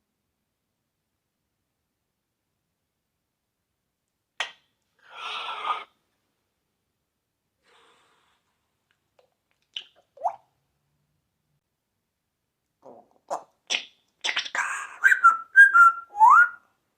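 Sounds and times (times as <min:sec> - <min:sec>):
parrot sneeze-like burst: 0:05.0 - 0:05.9
faint breathy sound: 0:07.6 - 0:08.7.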